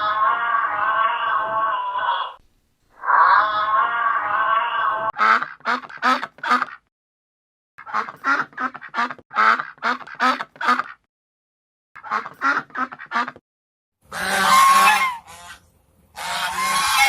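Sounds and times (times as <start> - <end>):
duck quacking: 5.1 - 6.9, 7.8 - 11.1, 12.0 - 13.4, 14.1 - 15.6, 16.2 - 17.0.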